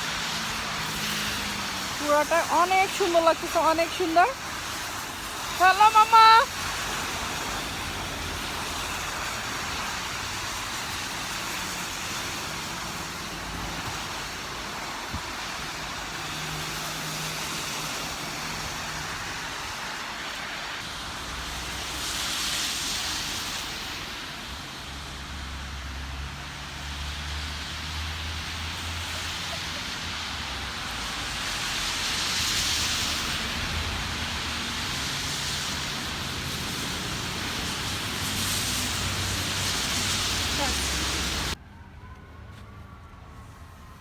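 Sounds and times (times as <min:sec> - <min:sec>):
street traffic road noise: 0:00.0 - 0:44.0
vehicle passing: 0:25.0 - 0:41.6.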